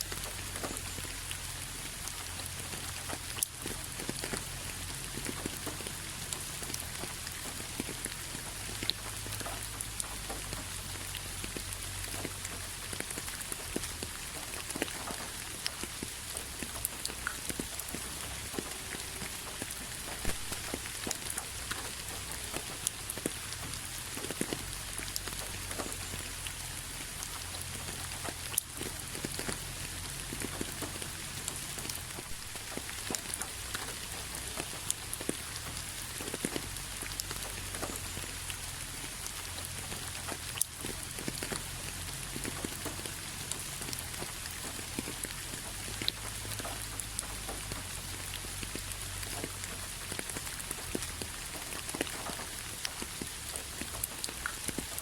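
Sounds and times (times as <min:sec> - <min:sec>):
raindrops pattering: 0:00.0 - 0:55.0
steady rain hissing: 0:00.0 - 0:55.0.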